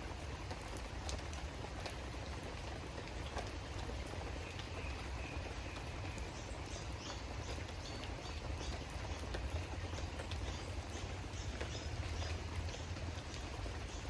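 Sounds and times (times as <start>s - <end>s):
raindrops ticking: 0.0s - 14.0s
steady rain falling: 0.0s - 14.0s.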